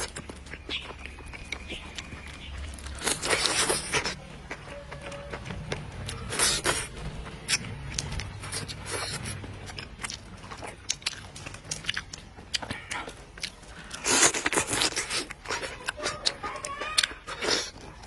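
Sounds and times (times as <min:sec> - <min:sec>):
person chewing food: 0:00.0 - 0:18.0.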